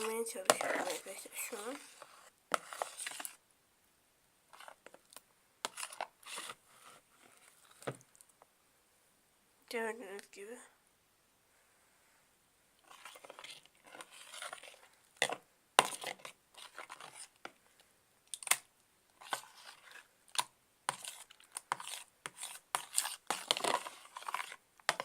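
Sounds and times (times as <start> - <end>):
slime tearing and popping: 18.3 - 18.7.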